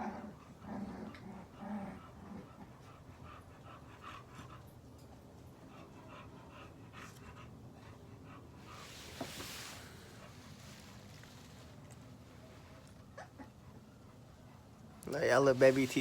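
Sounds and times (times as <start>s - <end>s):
puppies breathing: 0.3s - 16.0s
rustling: 8.6s - 13.0s, 15.1s - 16.0s.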